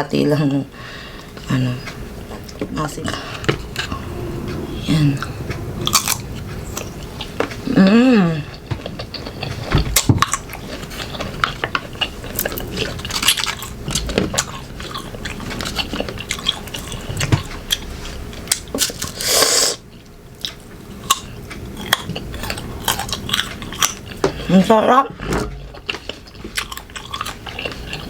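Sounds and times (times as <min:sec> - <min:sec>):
crunchy biting and chewing: 0:08.4 - 0:24.5, 0:25.4 - 0:28.0.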